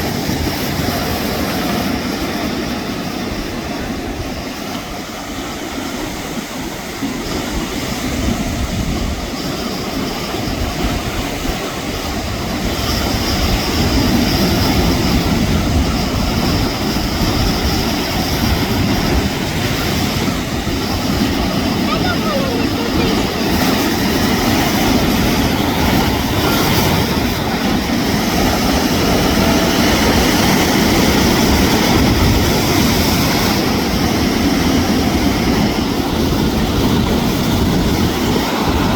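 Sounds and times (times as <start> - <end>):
waves breaking on shore: 0.0 - 38.9
wind buffeting microphone: 0.0 - 38.9.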